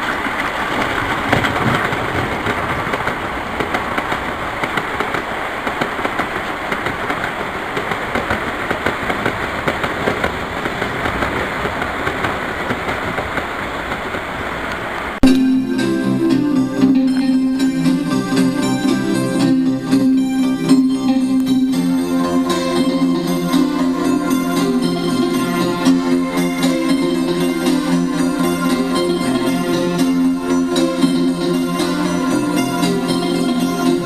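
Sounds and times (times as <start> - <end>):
model train running on track: 0.0 - 34.0.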